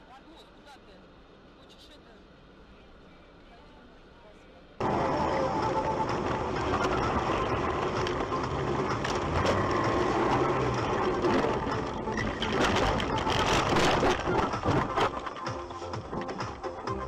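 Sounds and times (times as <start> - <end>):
road noise: 0.0 - 17.0
vehicle engine hum: 0.0 - 17.0
rattling: 4.8 - 16.8.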